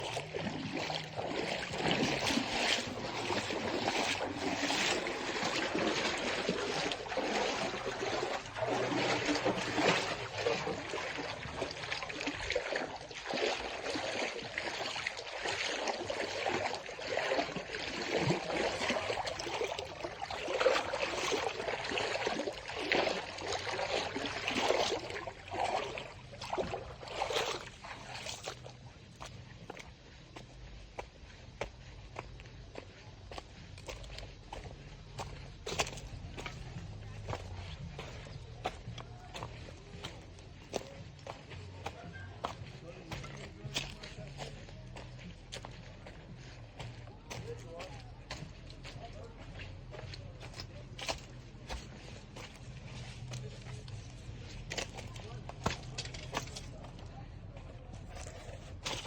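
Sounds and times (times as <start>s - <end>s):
river water splashing over rocks: 0.0s - 29.9s.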